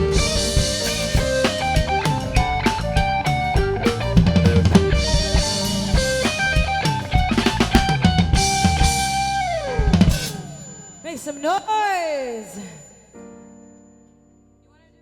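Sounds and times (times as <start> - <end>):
guitar playing: 0.0 - 11.1
live band playing instrumental: 0.0 - 11.1
drum kit: 0.0 - 11.2.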